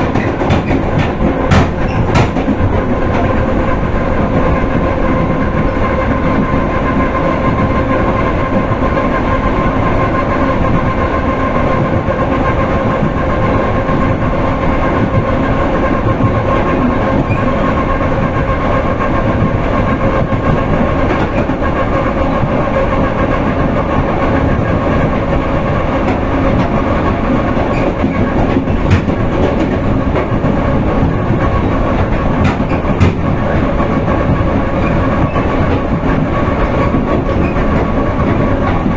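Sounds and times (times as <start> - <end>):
train wheels rumbling on rails: 0.0 - 38.9
steady hum: 17.8 - 38.9.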